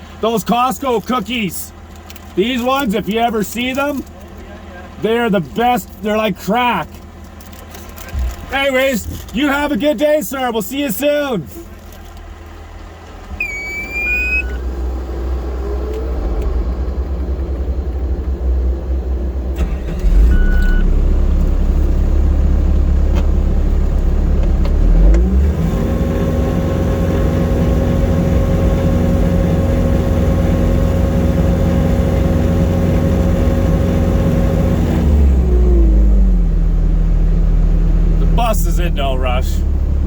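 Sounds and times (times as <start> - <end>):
road noise: 0.0 - 40.0
short beep: 13.4 - 14.6, 20.3 - 20.9
vehicle engine accelerating: 13.4 - 38.3.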